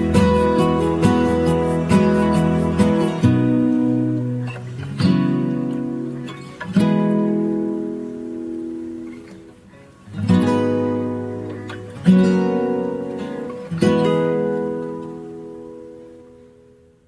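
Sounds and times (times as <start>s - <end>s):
acoustic guitar chords strummed: 0.0s - 17.0s.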